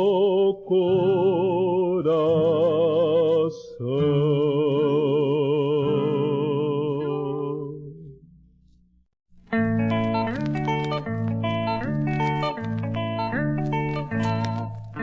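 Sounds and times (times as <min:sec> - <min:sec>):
hymn singing with vibrato: 0:00.0 - 0:08.1.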